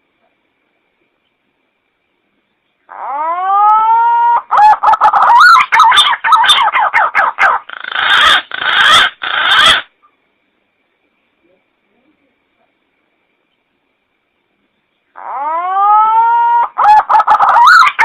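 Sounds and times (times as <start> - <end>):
recorded bird calls: 2.4 - 10.3, 14.7 - 18.0.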